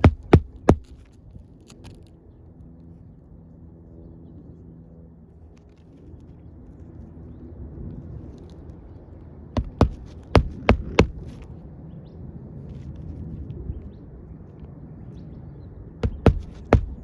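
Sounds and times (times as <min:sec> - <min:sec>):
sharp knocks on roof shingles: 0:00.0 - 0:01.0, 0:09.6 - 0:11.4, 0:16.0 - 0:17.0
steady low rumble: 0:00.0 - 0:17.0.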